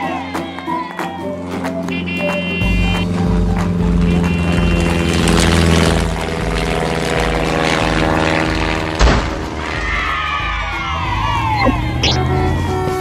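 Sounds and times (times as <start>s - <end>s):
cartoon music with steady beat: 1.2s - 4.8s
sharp boom or crash: 9.0s - 9.6s
falling whistle-like tones: 10.2s - 13.0s.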